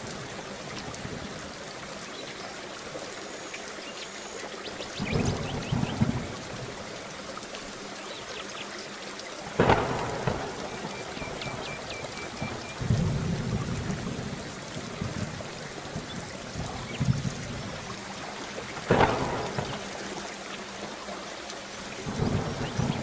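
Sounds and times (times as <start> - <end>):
steady rain: 0.0 - 23.0
low thunder rumble: 4.9 - 6.8, 9.5 - 20.3, 22.0 - 23.0
sharp thunderclaps: 5.0 - 6.5, 9.6 - 17.8, 18.8 - 20.2, 22.1 - 23.0.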